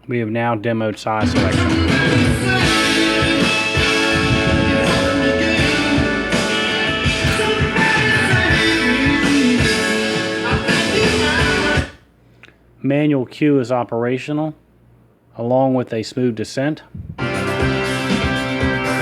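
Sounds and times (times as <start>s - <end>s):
rock music with guitar and drums: 1.3s - 12.0s, 17.2s - 19.0s.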